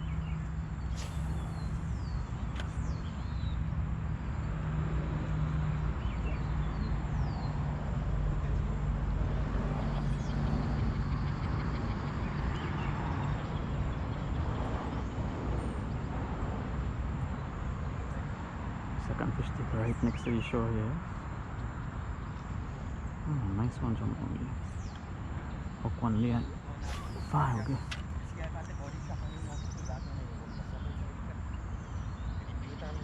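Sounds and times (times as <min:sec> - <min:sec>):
bird chirps: 0:00.0 - 0:04.5, 0:22.2 - 0:33.0.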